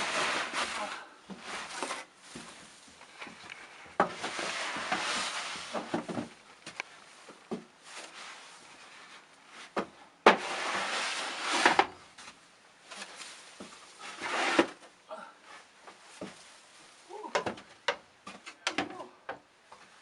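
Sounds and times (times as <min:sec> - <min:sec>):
snow shovel scraping snow: 0:00.0 - 0:02.5, 0:04.1 - 0:05.9, 0:10.3 - 0:11.9, 0:13.1 - 0:14.8.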